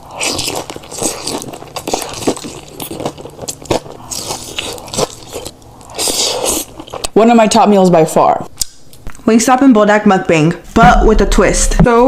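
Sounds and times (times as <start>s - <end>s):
crunchy chewing: 0.0s - 7.2s.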